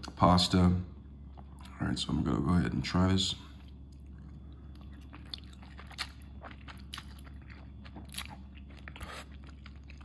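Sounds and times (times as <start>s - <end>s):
steady low hum: 0.0s - 10.0s
person chewing: 3.5s - 10.0s.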